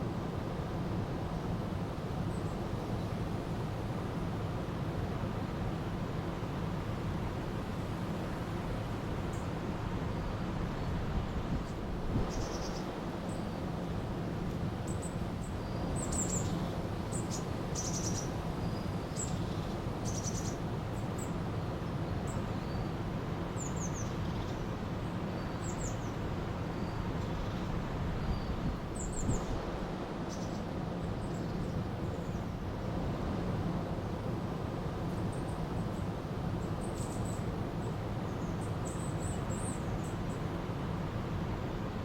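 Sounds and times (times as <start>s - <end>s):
bird chirps and trills: 12.2s - 13.4s, 14.9s - 20.6s.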